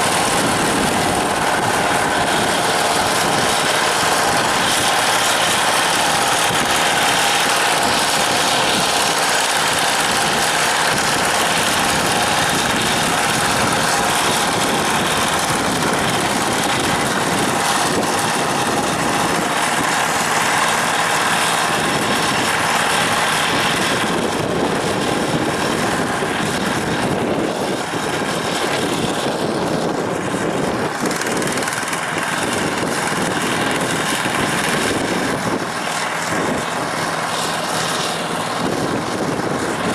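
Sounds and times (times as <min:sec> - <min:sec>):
ground-working blades: 0:00.0 - 0:39.9
tractor diesel engine running: 0:00.0 - 0:39.9.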